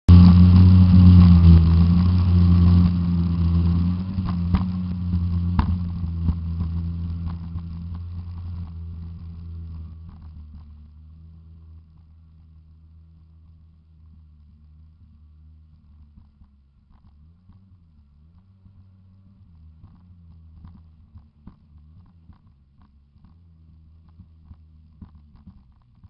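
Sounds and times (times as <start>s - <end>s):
jet ski engine running: 0.1s - 12.7s.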